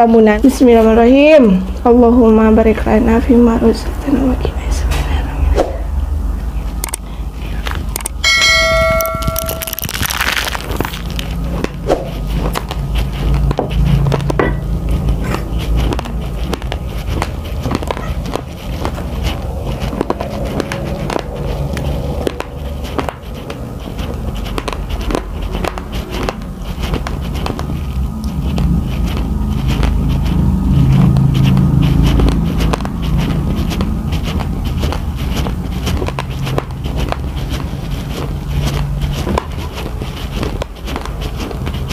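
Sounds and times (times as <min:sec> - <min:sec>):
steady low hum: 0:00.0 - 0:41.9
bell-like chime: 0:08.2 - 0:09.9
chewing raw rice: 0:09.2 - 0:41.9.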